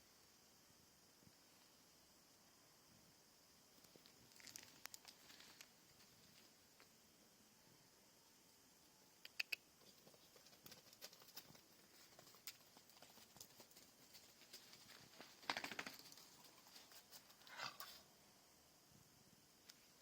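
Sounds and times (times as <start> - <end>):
faint high hiss: 0.0 - 20.0
sharp clicks and taps: 9.2 - 9.6.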